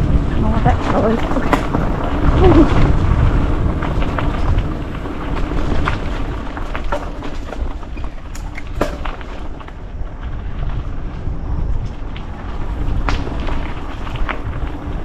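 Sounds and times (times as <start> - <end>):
bike clicks and rattles: 0.0 - 15.0
bike tyres rolling on dirt: 0.0 - 15.0
wind rumble on microphone: 0.0 - 15.0.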